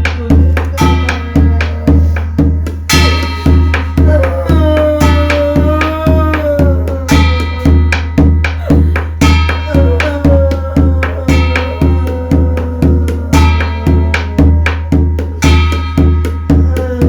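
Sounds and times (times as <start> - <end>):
drum beating steady rhythm: 0.0 - 17.0
cymbal-like ringing strokes: 13.3 - 16.6.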